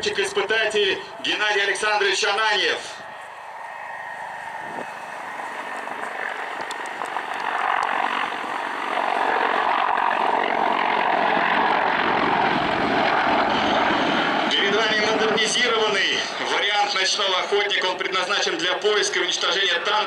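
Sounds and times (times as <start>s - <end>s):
helicopter rotor and turbine: 0.0s - 20.0s.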